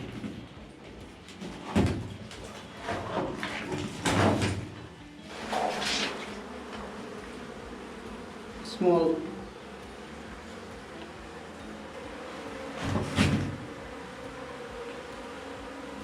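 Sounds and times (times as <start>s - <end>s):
scraping and handling noise: 0.0s - 7.0s.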